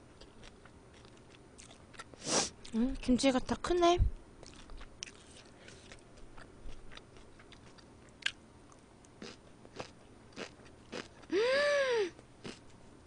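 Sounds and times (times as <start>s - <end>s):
chewing crunchy food: 0.1s - 3.2s, 4.4s - 11.3s, 12.4s - 12.8s.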